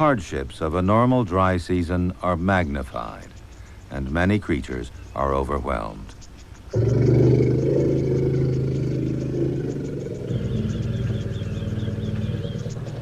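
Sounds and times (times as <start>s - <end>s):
faint bird chirps: 0.0s - 13.0s
elephant rumbling: 6.6s - 13.0s.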